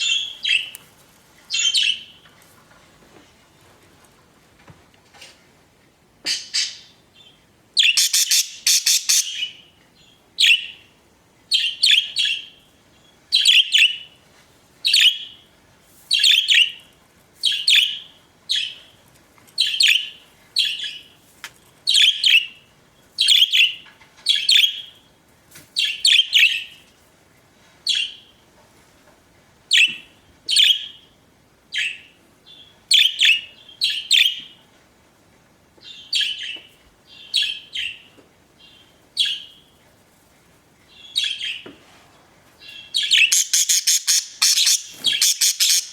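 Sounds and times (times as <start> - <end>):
budgerigars chirping: 7.8 - 9.6, 43.0 - 45.9.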